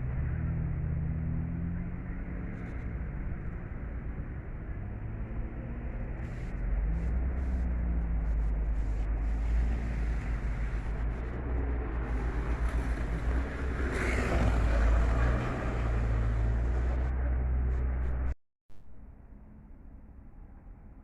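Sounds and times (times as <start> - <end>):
vehicle rumbling with road noise: 0.0 - 21.0
rush of noise: 2.4 - 19.1.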